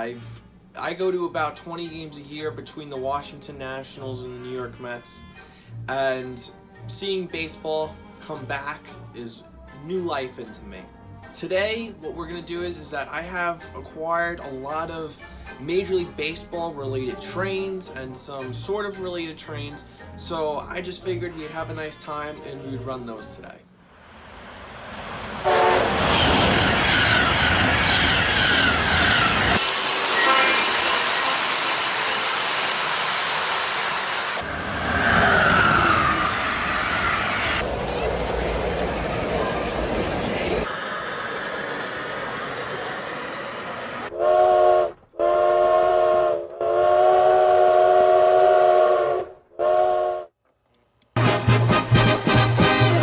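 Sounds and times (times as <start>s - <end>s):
train running noise: 24.7s - 44.2s
train horn: 25.4s - 34.5s, 44.1s - 50.3s.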